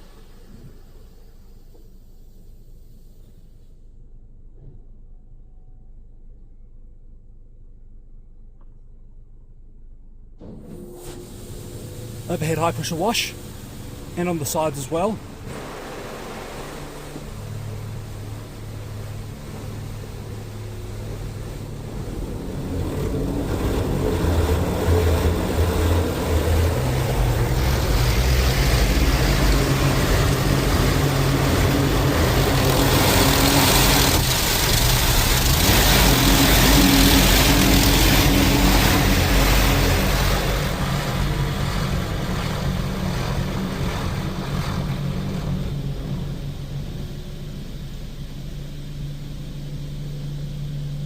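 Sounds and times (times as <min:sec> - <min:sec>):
car wash water jets spraying: 0:00.0 - 0:03.6, 0:10.8 - 0:51.0
machine humming: 0:10.4 - 0:51.0.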